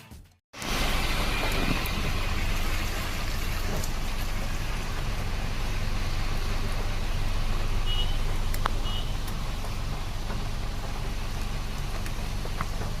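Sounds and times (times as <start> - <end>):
road traffic rumble: 0.6 - 13.0.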